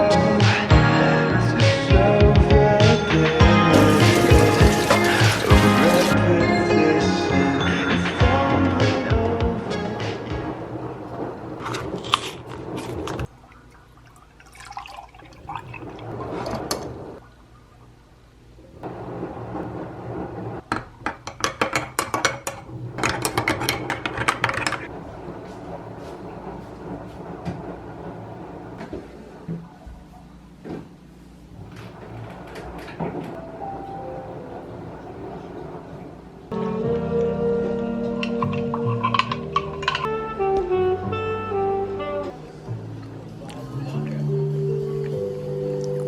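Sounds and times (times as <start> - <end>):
water pouring: 3.7 - 6.2, 13.0 - 16.8
water splashes: 3.8 - 6.2, 13.3 - 16.7
objects knocking and clicking: 20.7 - 24.9.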